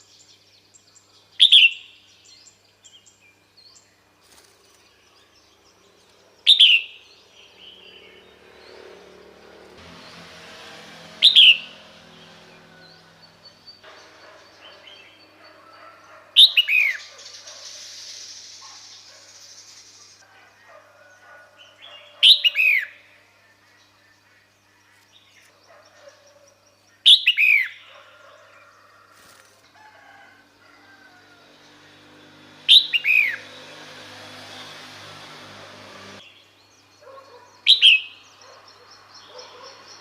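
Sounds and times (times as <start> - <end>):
bird calling: 13.2 - 23.0, 32.7 - 33.5.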